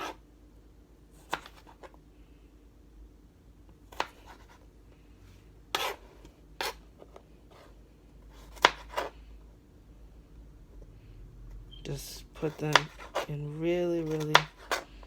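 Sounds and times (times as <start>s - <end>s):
knife slicing carrot on board: 1.2s - 2.0s, 3.9s - 4.6s, 5.7s - 7.7s, 8.3s - 9.1s, 12.5s - 13.4s, 14.0s - 14.9s.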